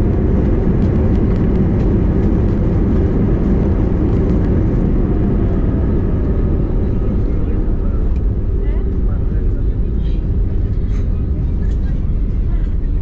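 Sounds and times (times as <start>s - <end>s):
airplane cabin rumble: 0.0s - 13.0s
faint engine tones: 0.0s - 13.0s.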